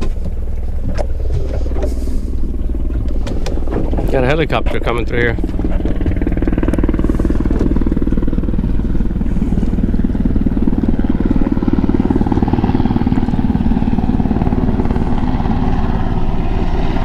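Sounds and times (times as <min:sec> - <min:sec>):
helicopter rotor chop: 0:00.0 - 0:17.0.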